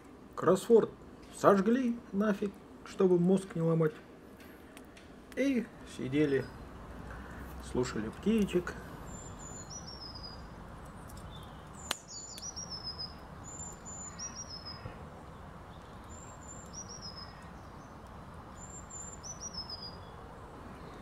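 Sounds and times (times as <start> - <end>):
songbird singing: 5.3 - 21.0.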